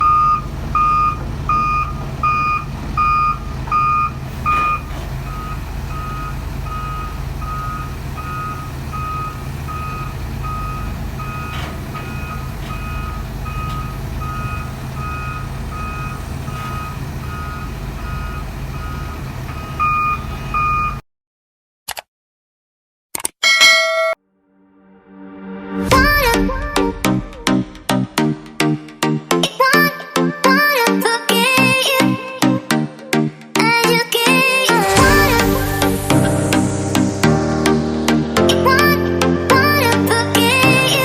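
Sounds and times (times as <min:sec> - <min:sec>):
back-up alarm beeping: 0:00.0 - 0:21.0, 0:34.9 - 0:37.3
diesel engine running: 0:00.0 - 0:21.0, 0:25.9 - 0:28.5, 0:34.8 - 0:41.0.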